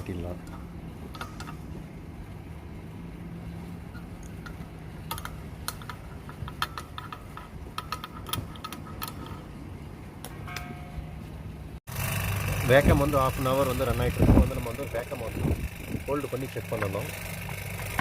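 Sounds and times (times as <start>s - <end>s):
metallic clicks of tools: 0.4s - 1.8s, 3.9s - 9.5s
vacuum pump humming: 11.9s - 18.0s.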